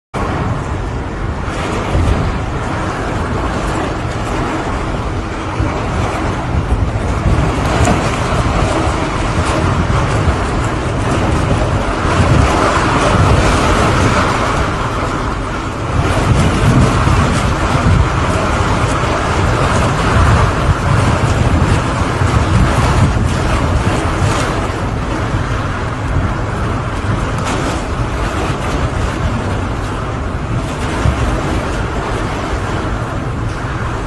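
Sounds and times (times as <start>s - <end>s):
heavy rain falling: 0.2s - 34.0s.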